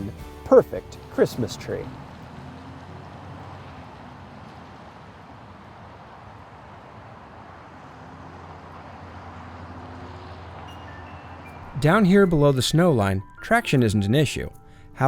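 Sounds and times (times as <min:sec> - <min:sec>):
car engine and tyre noise: 0:00.0 - 0:13.9.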